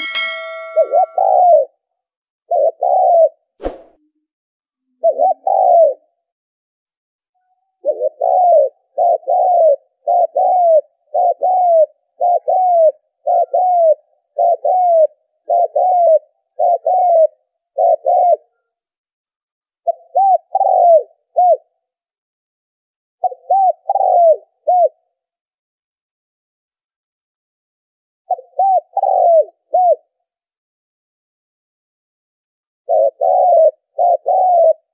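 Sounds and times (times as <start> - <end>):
dove cooing: 0.0 - 1.7, 2.5 - 3.4, 5.0 - 6.1, 7.8 - 18.5, 19.9 - 21.7, 23.2 - 25.0, 28.3 - 30.1, 32.9 - 34.9.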